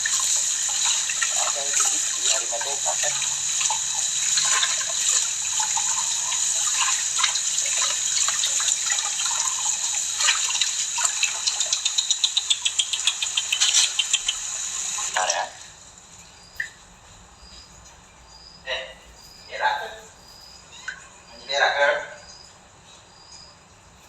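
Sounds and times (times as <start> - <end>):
tap water running into sink: 0.0 - 15.8
rapid series of short clicks: 10.2 - 15.2.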